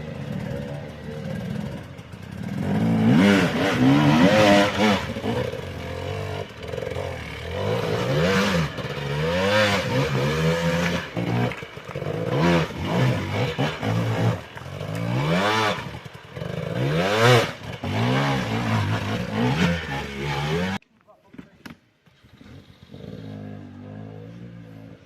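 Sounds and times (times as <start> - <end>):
motorcycle engine revving: 0.0 - 20.8, 22.1 - 25.0.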